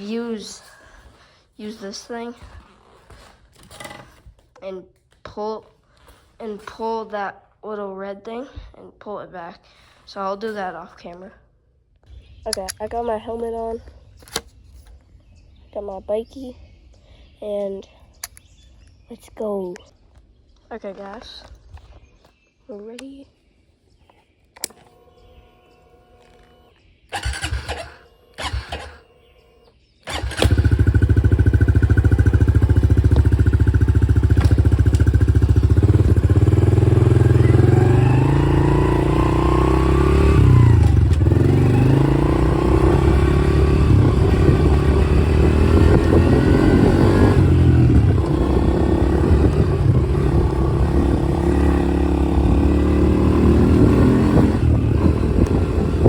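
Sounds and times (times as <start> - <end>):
dirt bike engine revving: 27.1 - 29.1, 30.1 - 56.0.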